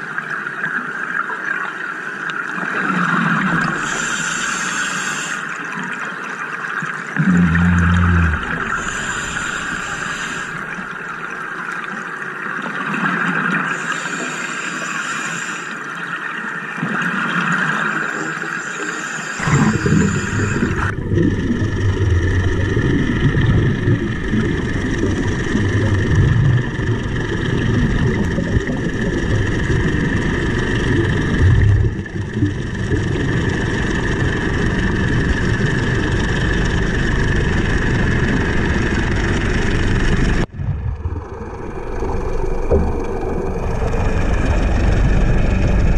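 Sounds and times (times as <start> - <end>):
steady engine-like hum underwater: 0.0 - 45.9
gurgling air bubbles: 7.1 - 11.0, 19.3 - 45.9
deep rumble: 7.2 - 10.9, 19.4 - 45.9.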